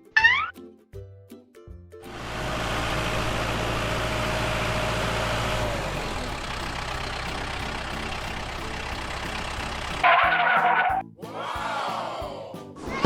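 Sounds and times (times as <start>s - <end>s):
heavy truck engine running: 2.0s - 11.0s.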